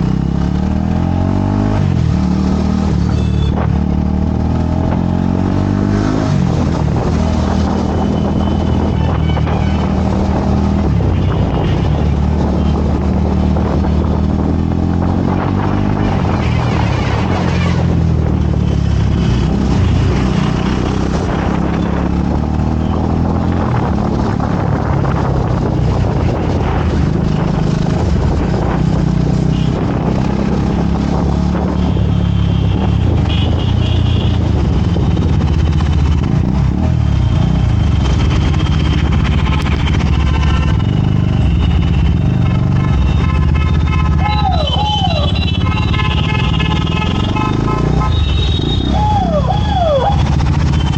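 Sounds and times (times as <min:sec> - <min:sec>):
motorcycle engine running: 0:32.3 - 0:50.9.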